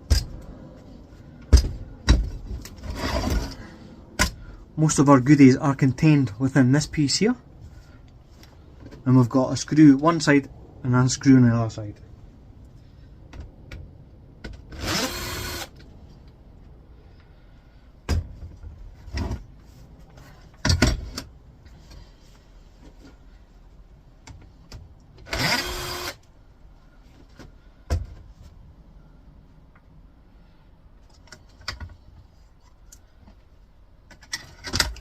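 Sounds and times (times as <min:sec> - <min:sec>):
power screwdriver whirring: 0:14.8 - 0:15.7, 0:25.2 - 0:26.2
metal and plastic parts clunking: 0:20.1 - 0:22.0, 0:34.0 - 0:35.0.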